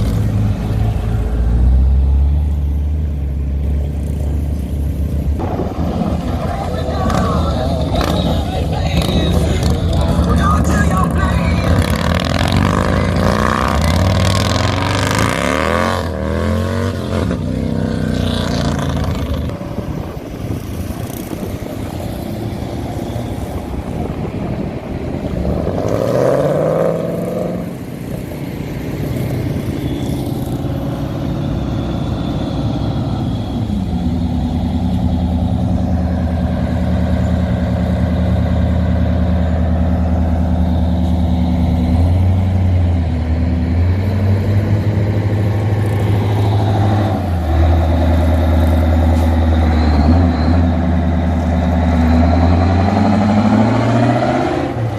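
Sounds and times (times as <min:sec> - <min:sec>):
car engine revving: 0:00.0 - 0:54.9
car engines driving past: 0:00.0 - 0:54.9
car engine idling: 0:27.6 - 0:43.7.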